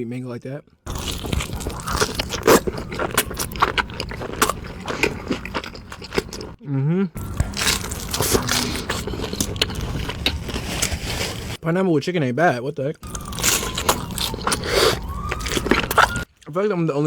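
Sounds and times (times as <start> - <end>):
chewing pizza crust: 0.9 - 6.6, 7.2 - 11.6, 13.0 - 16.5.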